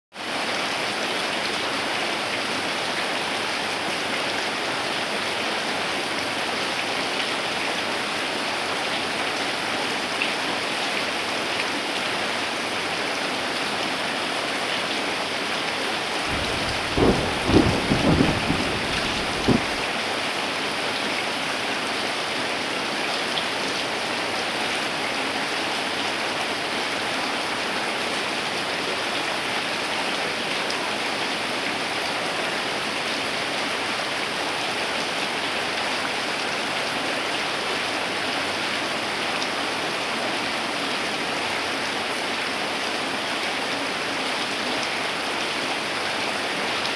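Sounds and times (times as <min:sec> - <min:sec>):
heavy rain falling: 0:00.2 - 0:46.9
thunder cracks: 0:16.3 - 0:20.0.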